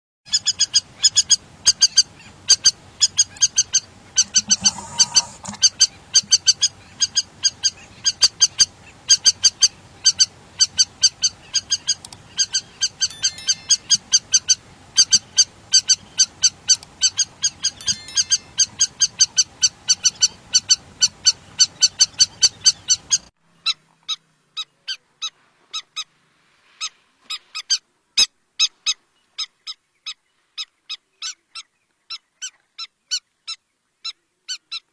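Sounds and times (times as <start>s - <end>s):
lapwing calling: 0.3s - 26.1s
background hiss: 0.6s - 22.7s, 24.2s - 30.9s.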